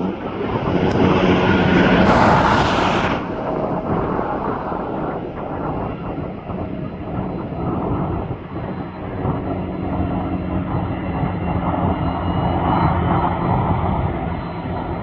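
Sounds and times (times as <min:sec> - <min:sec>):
jet plane passing: 0:00.0 - 0:06.6.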